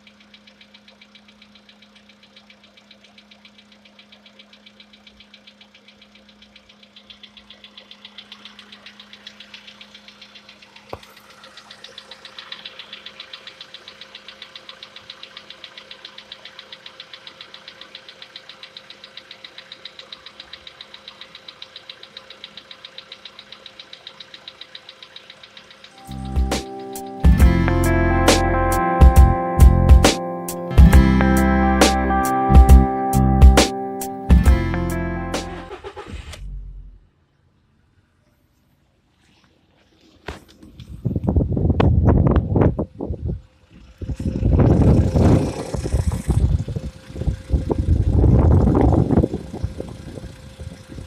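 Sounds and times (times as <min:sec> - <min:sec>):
car engine knocking: 0:00.0 - 0:36.0, 0:43.8 - 0:51.0.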